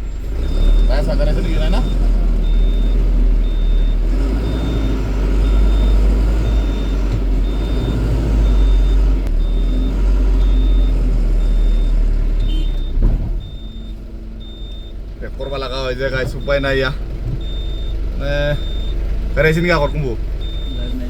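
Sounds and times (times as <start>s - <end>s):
truck engine rumbling: 0.0s - 21.0s
reversing beeper: 0.4s - 21.0s.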